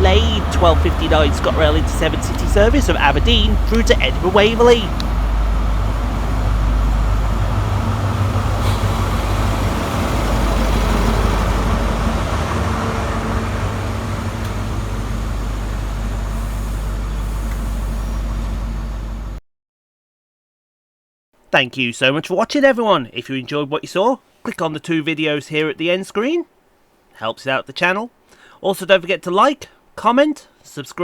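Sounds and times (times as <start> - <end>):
diesel engine drone: 0.0 - 19.4
train rumbling: 0.0 - 19.4.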